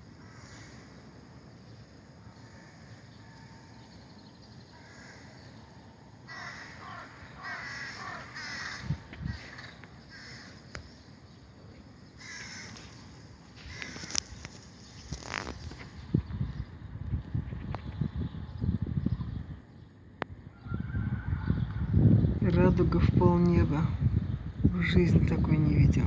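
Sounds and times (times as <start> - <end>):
crows cawing: 0.2 - 1.0, 4.7 - 10.7, 12.2 - 14.4.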